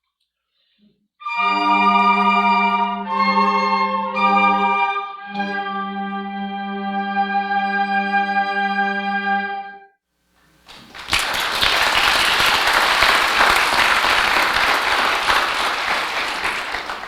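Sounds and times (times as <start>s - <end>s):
audience applause: 10.5s - 17.0s.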